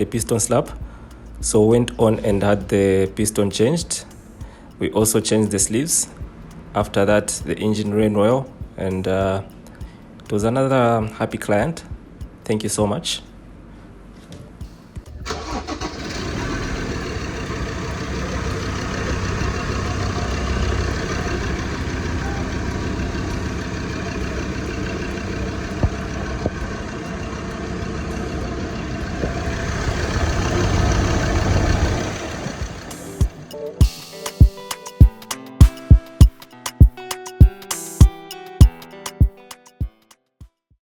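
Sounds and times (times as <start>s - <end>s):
truck engine starting and running: 15.2s - 33.6s.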